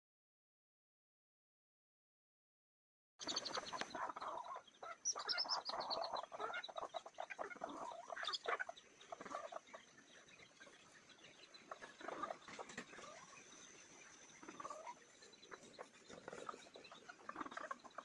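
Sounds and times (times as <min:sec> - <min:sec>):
chickens clucking: 0:03.2 - 0:18.0.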